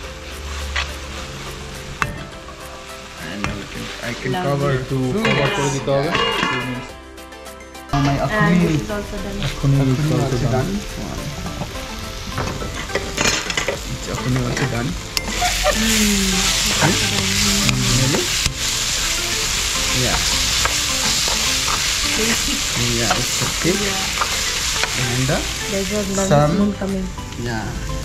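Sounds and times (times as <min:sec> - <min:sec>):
beans sizzling in pan: 0:00.0 - 0:28.0
metal spatula scraping pan: 0:05.2 - 0:06.9, 0:14.4 - 0:25.2.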